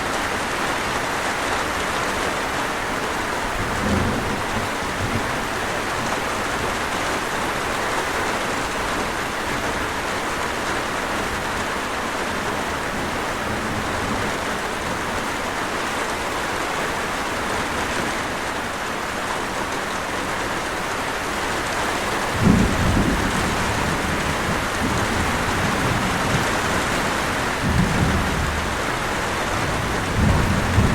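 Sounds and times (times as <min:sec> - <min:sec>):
heavy rainfall: 0:00.0 - 0:30.9
thunder rumbling: 0:03.4 - 0:06.8, 0:22.3 - 0:30.9.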